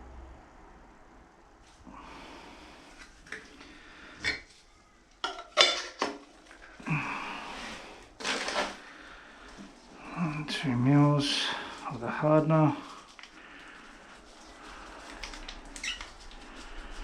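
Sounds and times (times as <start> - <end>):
rustling handling noise: 2.9 - 17.0.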